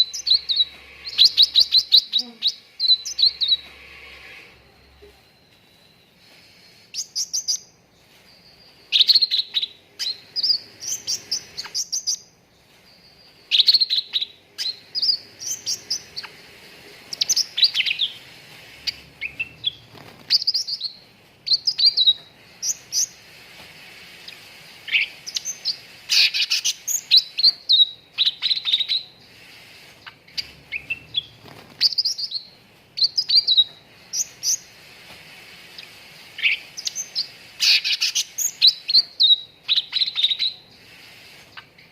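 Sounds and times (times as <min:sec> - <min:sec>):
bird chirping and whistling: 0:00.0 - 0:07.8, 0:08.4 - 0:12.3, 0:12.9 - 0:16.3, 0:17.1 - 0:18.2, 0:18.8 - 0:23.2, 0:24.9 - 0:29.1, 0:30.3 - 0:34.7, 0:36.4 - 0:40.6
faint steady hiss: 0:00.0 - 0:41.9.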